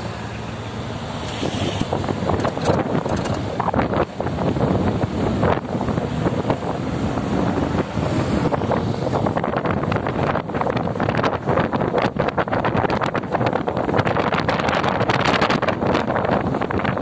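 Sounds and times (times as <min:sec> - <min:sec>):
moving vehicle rumble: 0:00.0 - 0:17.0
wind buffeting microphone: 0:01.5 - 0:17.0.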